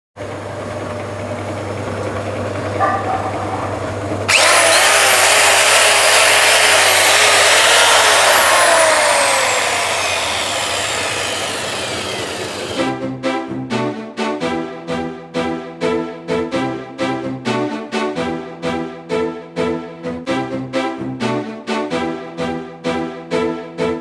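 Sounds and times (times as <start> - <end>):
power tool running: 4.3 - 12.8.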